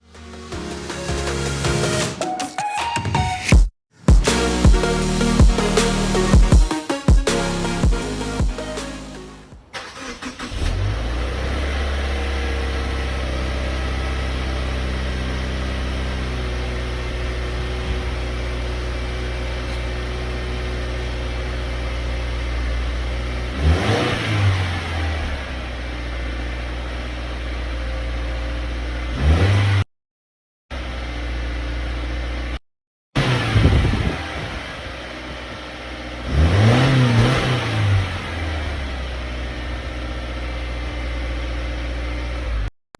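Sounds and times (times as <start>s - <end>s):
car engine idling: 7.4s - 23.6s, 38.2s - 42.7s
engine rev blip: 33.2s - 34.8s, 36.2s - 38.9s.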